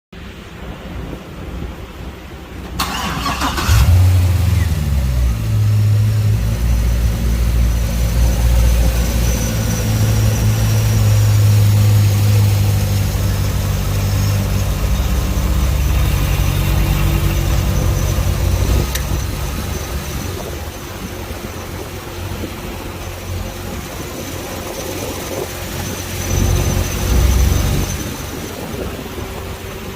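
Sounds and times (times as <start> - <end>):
car engine idling: 2.5 - 29.9
starter motor cranking: 2.8 - 4.1.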